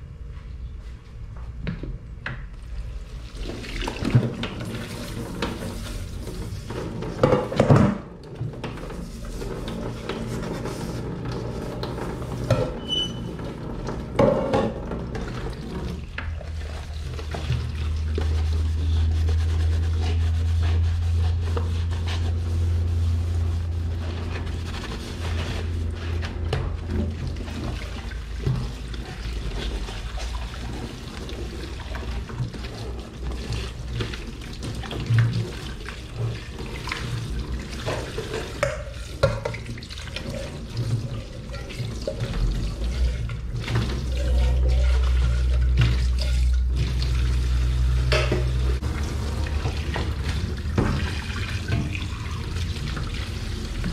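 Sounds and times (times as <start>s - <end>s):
tap water running into sink: 26.4s - 53.9s.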